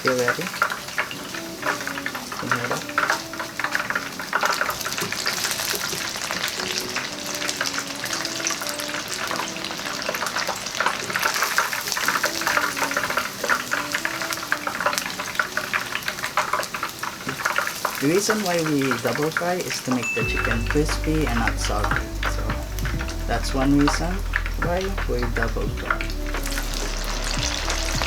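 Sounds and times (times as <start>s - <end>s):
chicken sizzling in hot oil: 0.0s - 22.5s, 23.1s - 28.0s.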